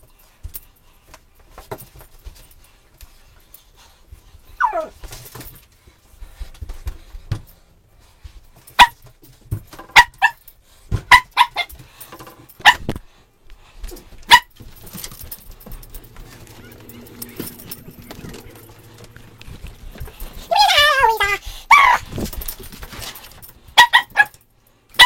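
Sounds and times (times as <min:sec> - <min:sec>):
dog whining: 0:04.6 - 0:05.0, 0:16.0 - 0:22.1
small dog yapping: 0:04.6 - 0:05.0, 0:20.4 - 0:22.1.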